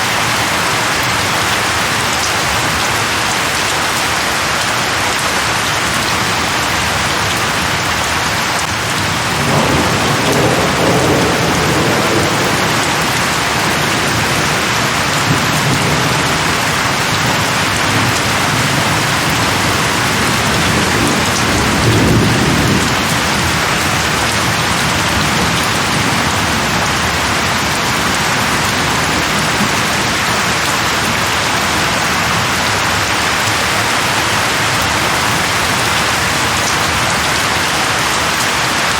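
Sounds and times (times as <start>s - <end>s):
heavy rain hissing: 0.0s - 38.9s
low thunder rolling: 8.7s - 31.3s.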